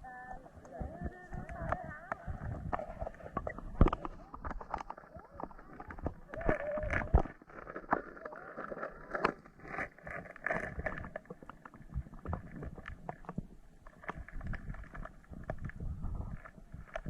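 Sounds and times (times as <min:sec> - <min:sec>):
stream water splashing: 0:01.7 - 0:12.8.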